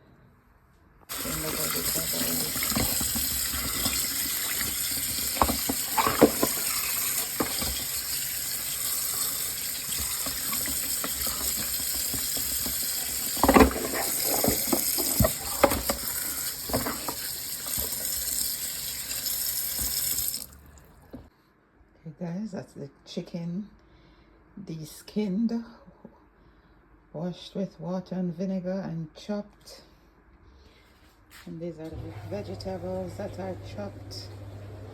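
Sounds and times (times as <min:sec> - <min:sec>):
kitchen tap running into sink: 0:01.1 - 0:21.2
knocks and clatters under water: 0:09.9 - 0:18.0.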